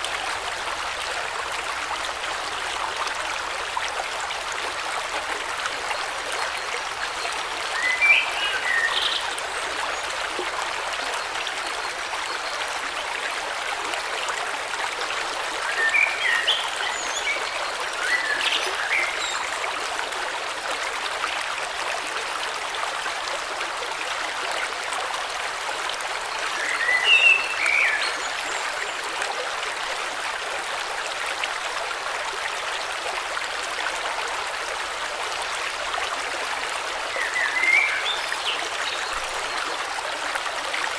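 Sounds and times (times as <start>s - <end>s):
river water rushing: 0.0s - 13.5s.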